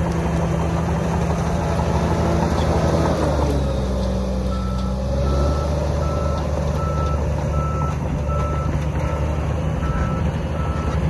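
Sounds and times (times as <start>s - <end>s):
bulldozer diesel engine running: 0.0s - 11.0s
reversing alarm beeping: 4.5s - 11.0s.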